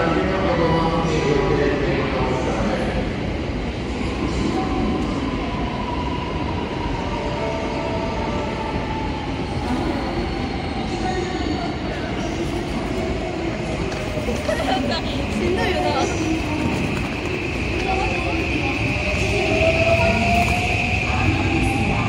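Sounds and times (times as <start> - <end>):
train running gear rumbling: 12.5 - 22.0.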